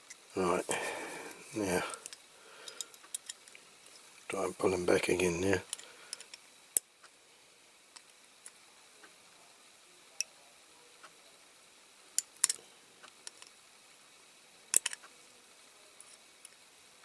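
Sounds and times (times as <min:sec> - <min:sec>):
clicks of small toy parts: 0:12.2 - 0:13.6, 0:14.7 - 0:15.1.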